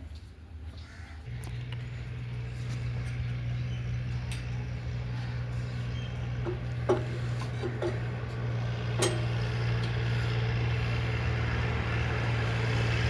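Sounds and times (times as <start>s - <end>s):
engine humming: 0.9s - 13.0s
short knocks: 6.4s - 9.6s.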